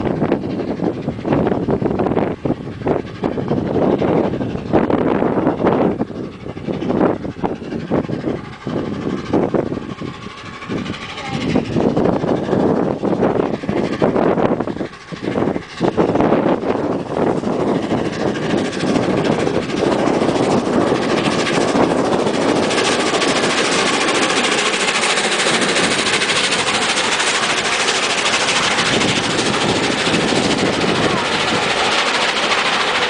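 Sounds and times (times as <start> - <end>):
steam locomotive exhaust beats: 0.0 - 33.0
train wheels rushing on rail: 0.0 - 33.0.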